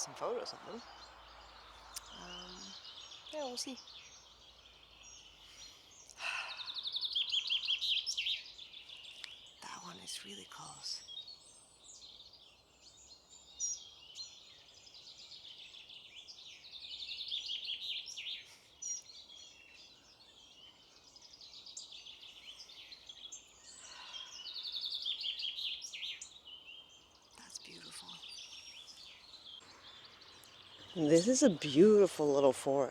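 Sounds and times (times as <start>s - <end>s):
songbirds singing in chorus: 0.0s - 32.9s.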